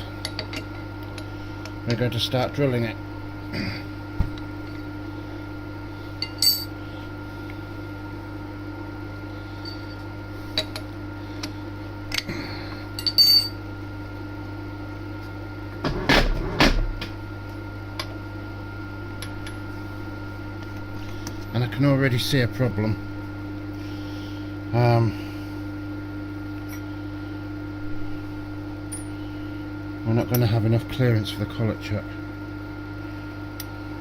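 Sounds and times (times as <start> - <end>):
milling machine humming: 0.0 - 34.0
metallic clinks of tools: 13.0 - 13.6.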